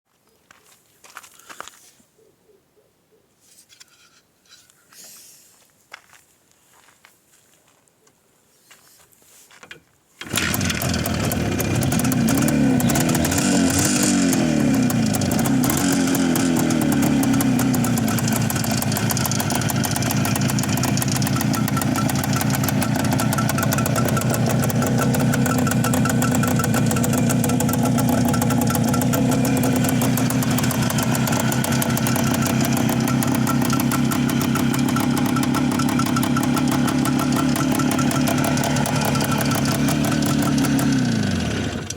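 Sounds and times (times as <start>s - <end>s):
motorcycle engine revving and idling: 10.2s - 41.9s.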